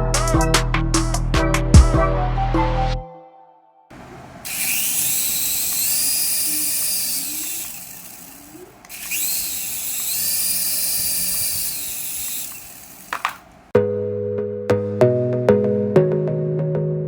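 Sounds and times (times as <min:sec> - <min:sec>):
toy electric motor whirring: 0:04.0 - 0:13.7.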